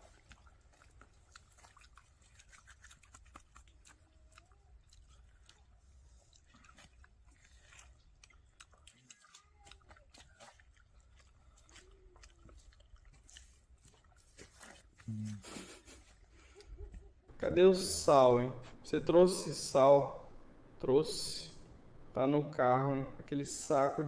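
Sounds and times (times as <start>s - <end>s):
low steady hum: 9.5s - 24.0s.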